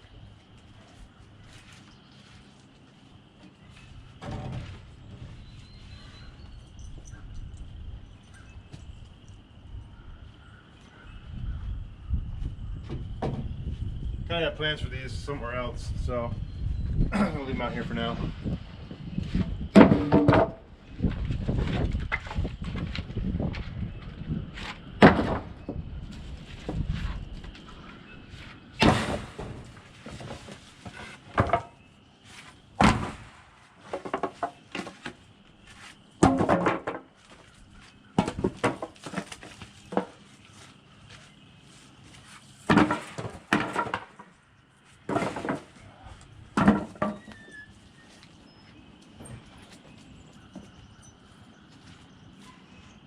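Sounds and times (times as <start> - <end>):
wood scraping and knocking: 3.4 - 5.6, 12.8 - 13.7, 19.2 - 31.8, 33.8 - 37.6, 38.2 - 40.5, 42.2 - 44.4, 45.0 - 47.7
wooden beams thudding: 19.4 - 23.7, 25.0 - 25.9, 28.8 - 31.8, 32.8 - 35.2, 36.2 - 37.1, 38.1 - 40.2, 42.7 - 44.4, 45.0 - 45.8, 46.5 - 47.4.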